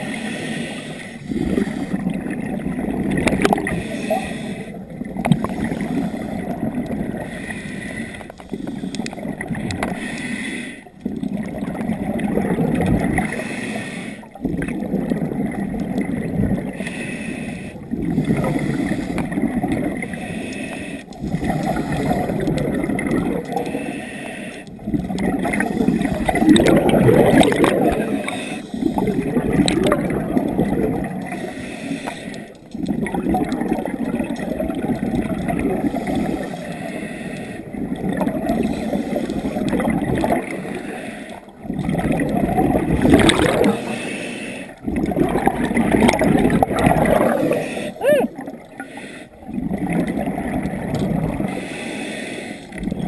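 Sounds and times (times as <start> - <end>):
diver breathing through regulator: 0.0 - 2.2, 3.4 - 4.8, 5.4 - 11.0, 13.2 - 14.4, 16.6 - 22.5, 23.4 - 29.4, 31.2 - 32.6, 35.8 - 37.8, 38.4 - 39.9, 40.5 - 41.7, 43.4 - 45.0, 47.0 - 48.1, 48.7 - 49.5, 51.3 - 52.9
gurgling bubbles: 0.0 - 24.0, 24.6 - 52.1, 52.7 - 53.0.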